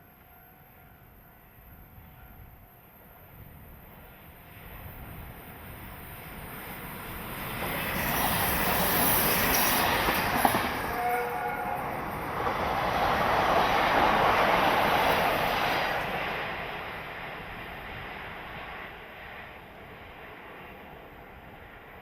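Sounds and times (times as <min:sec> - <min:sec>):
train passing: 0:00.0 - 0:22.0
train horn note: 0:10.7 - 0:12.1.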